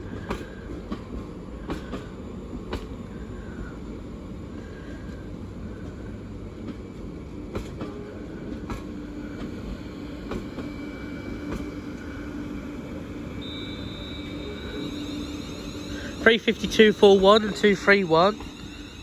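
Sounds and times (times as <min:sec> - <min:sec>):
electric train rumble and hum: 0:00.0 - 0:19.0
thin high tone: 0:13.3 - 0:19.0.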